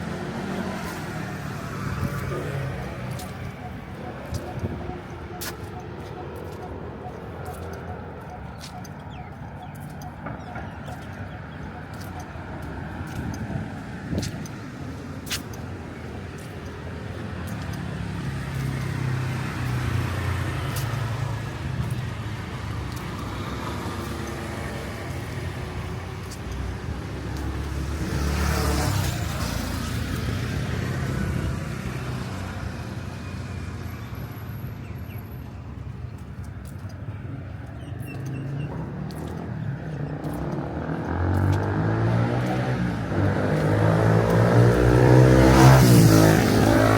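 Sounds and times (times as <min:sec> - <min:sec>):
vehicles passing: 0:00.0 - 0:46.9
vehicle passing close: 0:37.6 - 0:46.9.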